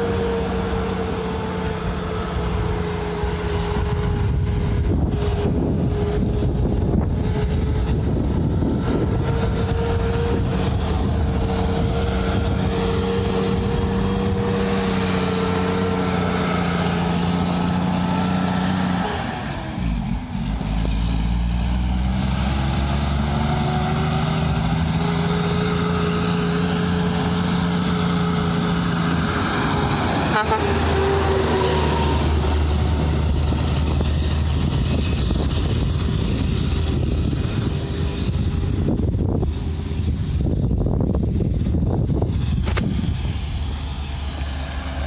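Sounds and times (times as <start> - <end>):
truck diesel engine running: 0.0 - 45.0.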